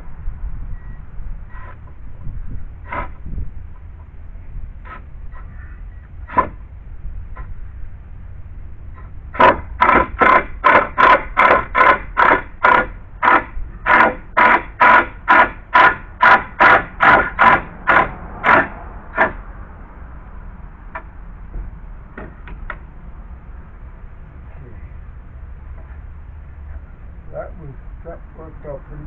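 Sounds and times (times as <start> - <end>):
saw cutting through lumber: 6.3 - 6.6, 9.4 - 19.4.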